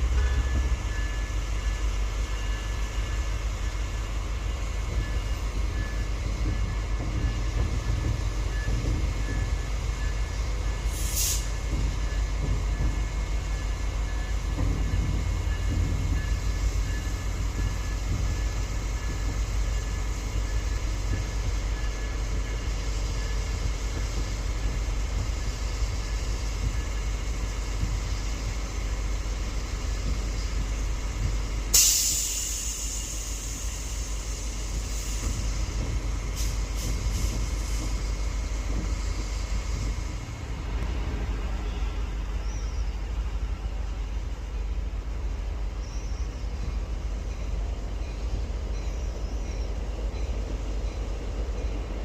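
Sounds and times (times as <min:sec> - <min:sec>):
diesel train rumbling: 0:00.0 - 0:52.0
air hiss: 0:10.8 - 0:11.7, 0:31.7 - 0:40.2.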